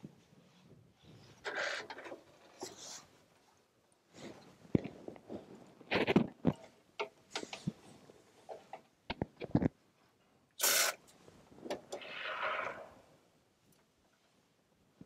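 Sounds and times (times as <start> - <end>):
spray foam can hissing: 10.6 - 11.0.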